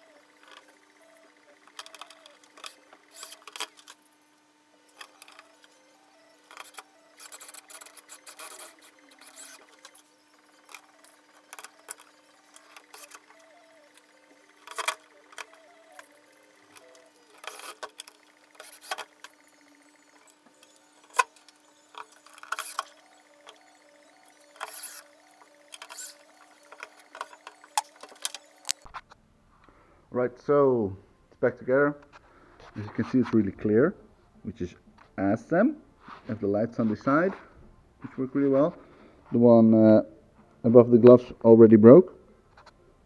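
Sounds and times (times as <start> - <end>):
tools clicking and clinking: 0.0 - 0.8, 1.6 - 4.0, 4.9 - 5.8, 6.4 - 28.9
faint steady hum: 0.0 - 33.0.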